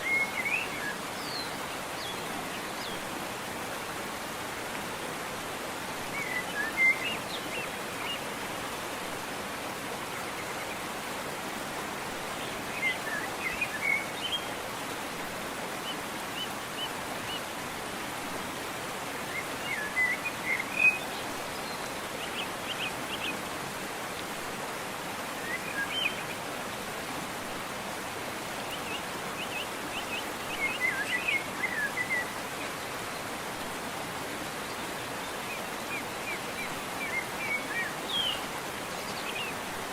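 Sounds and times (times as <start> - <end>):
songbird chirping: 0.0 - 3.2, 28.6 - 33.4, 34.4 - 39.9
waterfall rushing: 0.0 - 39.9.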